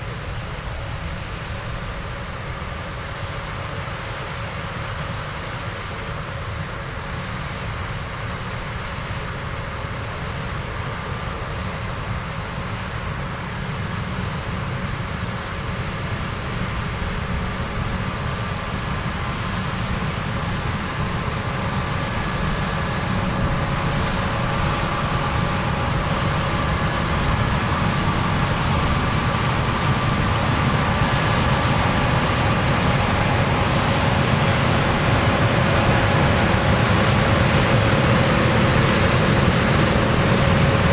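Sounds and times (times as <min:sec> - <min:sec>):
diesel engine running: 0:15.3 - 0:40.9.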